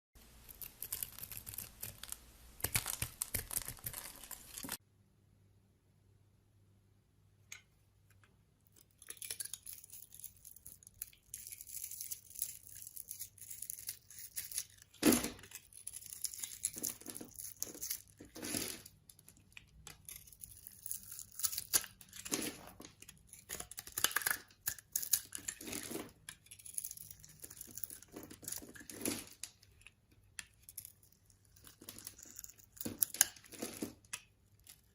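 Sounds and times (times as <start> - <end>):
knife cutting dry soap: 9.0 - 34.9.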